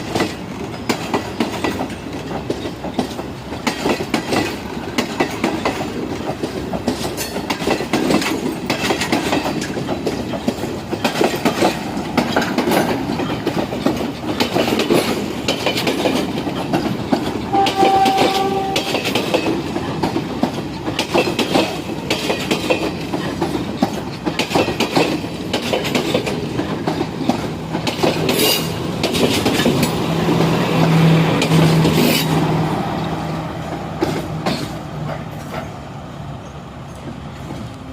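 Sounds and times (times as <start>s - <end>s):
train wheels clicking over rail joints: 0.0s - 37.9s
train horn blast: 17.5s - 19.2s.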